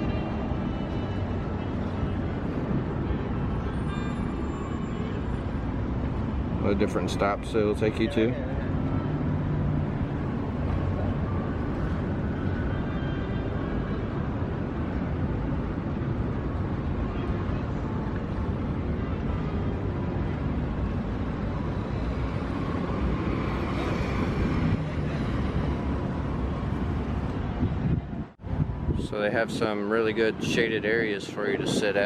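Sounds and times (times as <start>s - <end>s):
wind on microphone: 21.8s - 32.0s.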